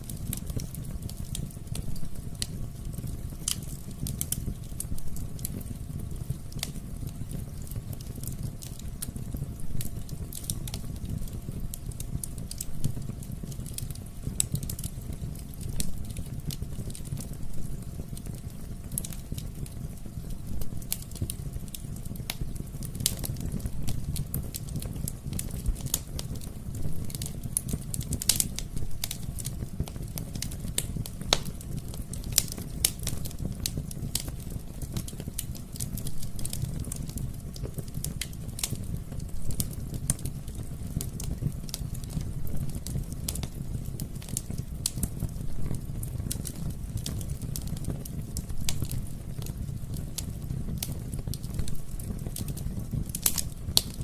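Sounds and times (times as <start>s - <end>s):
fire pops and snaps: 0.0s - 54.0s
low rumble of burning: 0.0s - 54.0s
wood fire crackling: 0.0s - 54.0s.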